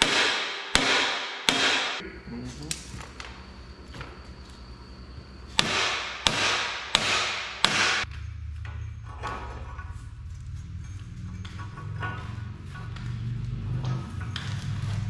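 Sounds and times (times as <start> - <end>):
hammer strikes: 0.0 - 2.0, 5.6 - 8.2
steady low hum: 0.0 - 15.0.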